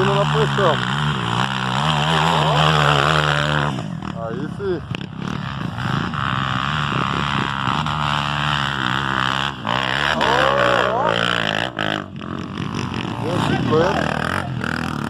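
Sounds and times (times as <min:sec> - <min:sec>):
voices: 0:00.0 - 0:04.9, 0:09.8 - 0:12.2, 0:13.0 - 0:15.0
motorcycle engines revving: 0:00.0 - 0:15.0.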